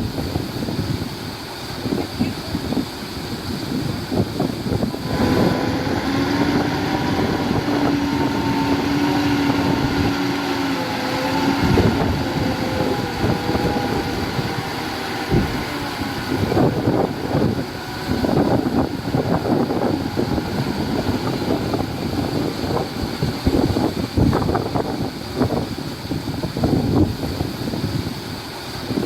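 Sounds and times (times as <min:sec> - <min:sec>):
earthmoving machine diesel engine: 0:00.0 - 0:29.0
steady whine: 0:00.0 - 0:29.0.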